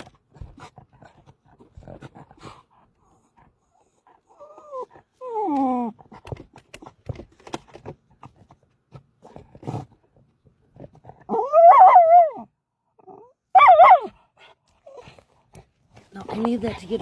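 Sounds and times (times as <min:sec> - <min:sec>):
dog whining: 0:04.3 - 0:06.2, 0:11.2 - 0:14.2
light clicks and scratches: 0:14.6 - 0:17.0.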